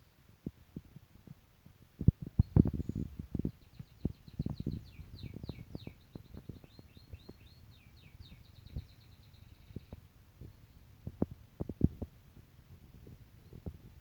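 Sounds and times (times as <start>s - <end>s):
bird chirping: 2.3s - 11.8s.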